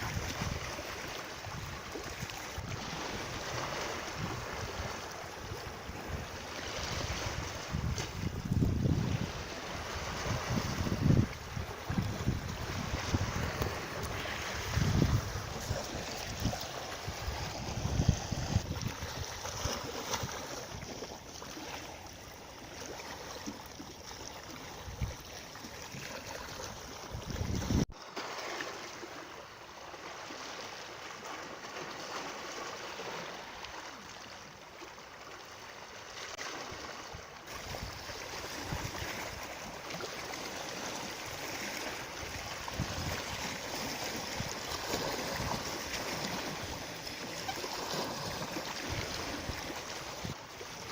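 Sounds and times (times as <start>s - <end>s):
running water rushing: 0.0s - 50.9s
wind buffeting microphone: 2.6s - 21.0s, 26.8s - 27.9s, 37.6s - 39.6s, 42.2s - 46.9s.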